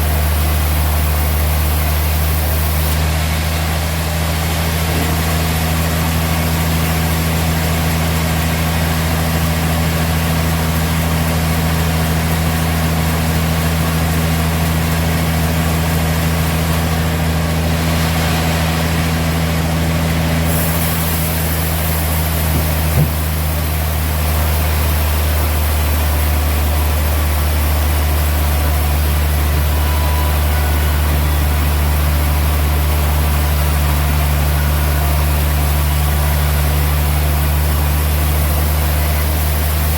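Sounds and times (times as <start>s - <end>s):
sawmill machinery humming: 0.0s - 39.9s
short knock: 22.5s - 23.3s.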